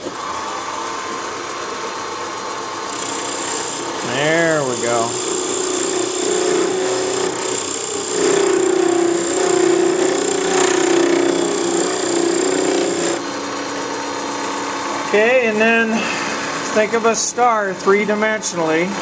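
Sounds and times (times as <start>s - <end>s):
wood lathe motor hum and whine: 0.0s - 18.8s
chisel scraping spinning wood: 2.9s - 13.2s.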